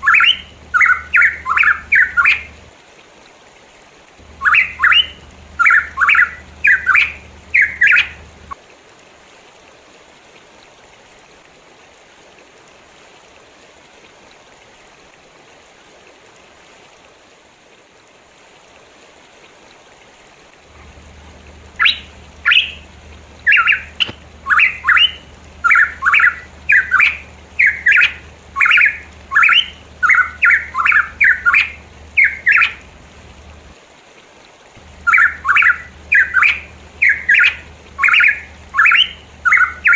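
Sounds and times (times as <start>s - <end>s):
bird harsh calls: 0.0s - 2.6s, 4.2s - 8.6s, 20.7s - 33.0s, 34.8s - 39.9s
low hum: 0.0s - 2.7s, 4.2s - 8.6s, 20.6s - 33.8s, 34.8s - 39.9s
background hiss: 0.0s - 39.9s.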